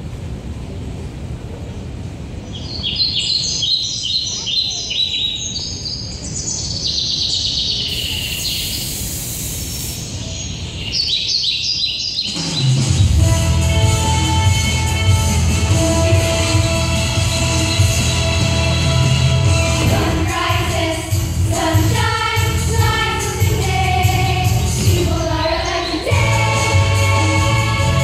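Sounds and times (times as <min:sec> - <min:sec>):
birds chirping: 0:02.4 - 0:12.8, 0:19.9 - 0:26.4
brief hiss: 0:07.9 - 0:10.2
steady low rumble: 0:13.0 - 0:28.0.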